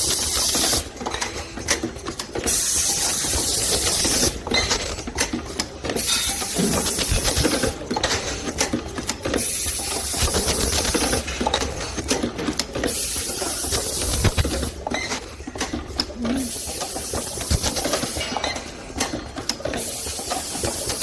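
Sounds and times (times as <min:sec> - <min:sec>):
rapid mechanical clicks and clatter: 0:00.0 - 0:21.0
welding machine high hiss: 0:06.1 - 0:07.8, 0:09.4 - 0:11.2, 0:12.9 - 0:14.7, 0:16.4 - 0:18.3, 0:19.8 - 0:21.0.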